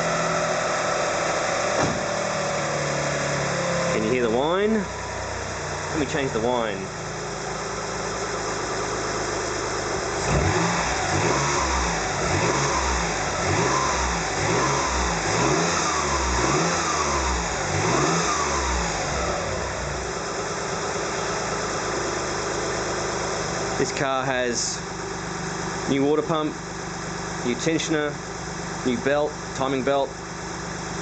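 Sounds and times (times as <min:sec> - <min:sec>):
car engine revving: 0:00.0 - 0:24.3.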